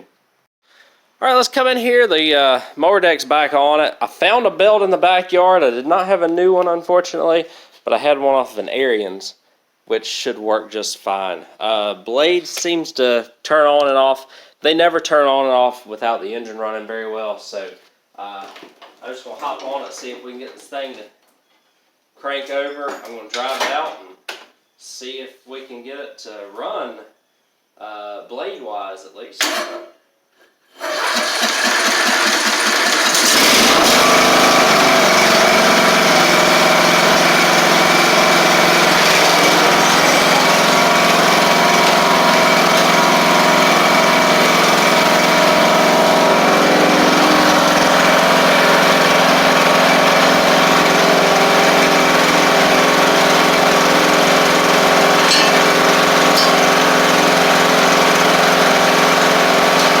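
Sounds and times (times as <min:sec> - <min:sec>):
riding mower engine running: 0:30.8 - 1:00.0.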